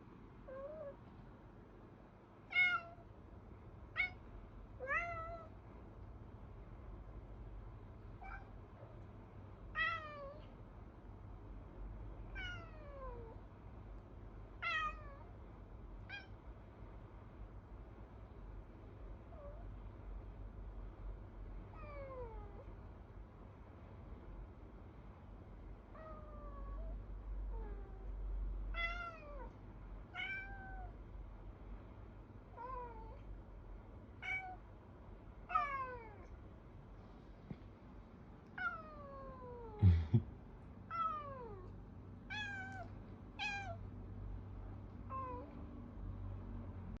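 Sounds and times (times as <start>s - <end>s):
cat meowing: 0.5s - 1.0s, 2.5s - 3.1s, 3.9s - 4.2s, 4.8s - 5.5s, 8.2s - 9.0s, 9.7s - 10.5s, 12.3s - 13.4s, 14.6s - 15.3s, 16.0s - 16.4s, 21.7s - 22.7s, 25.9s - 26.9s, 28.7s - 31.0s, 32.5s - 33.2s, 34.2s - 34.6s, 35.5s - 36.3s, 38.6s - 39.8s, 40.9s - 41.7s, 42.3s - 43.8s, 45.1s - 45.6s.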